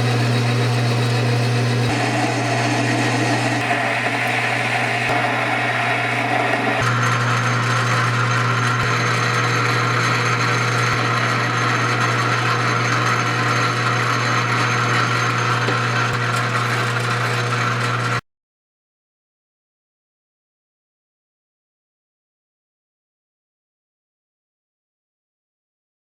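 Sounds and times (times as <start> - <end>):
power tool sanding: 0.0 - 18.2.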